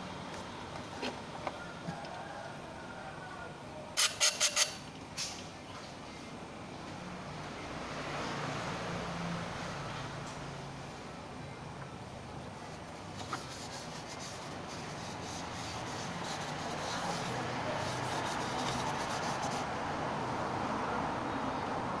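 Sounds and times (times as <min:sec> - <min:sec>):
steady rubbing: 0:13.2 - 0:19.7.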